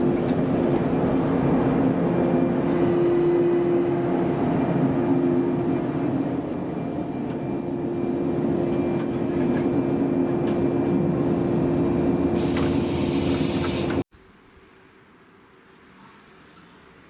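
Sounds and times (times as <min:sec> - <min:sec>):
electric train running on rails: 0:00.0 - 0:14.0
high wheel squeal: 0:04.0 - 0:09.5
burst of hiss: 0:12.4 - 0:14.0.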